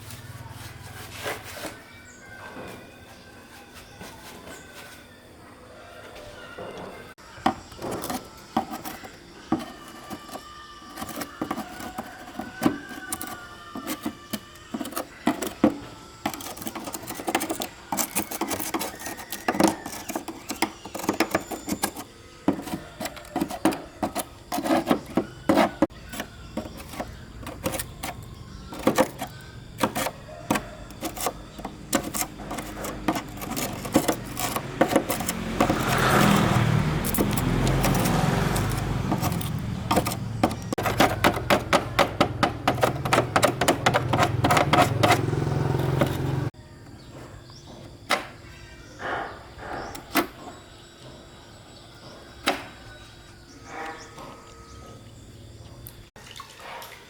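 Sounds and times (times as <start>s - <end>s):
hands and tools handling parts: 7.2s - 46.6s.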